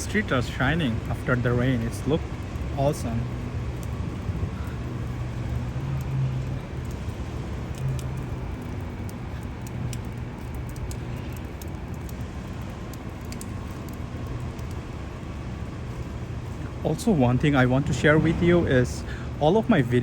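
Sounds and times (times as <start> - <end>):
faint traffic: 0.0 - 20.0
low mechanical hum: 0.0 - 20.0
light ticks: 4.7 - 14.8.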